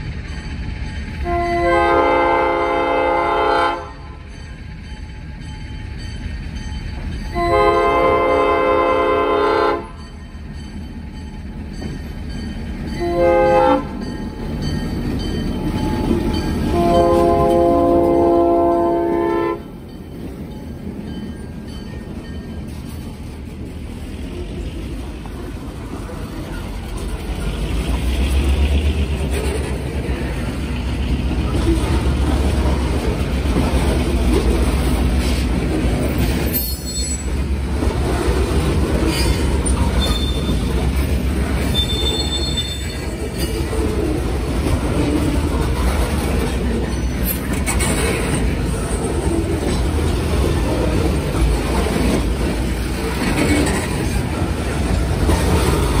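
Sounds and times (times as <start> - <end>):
freight train rumbling: 0.0 - 56.0
high-pitched wheel squeals: 36.4 - 37.5, 39.1 - 40.8, 41.6 - 43.6.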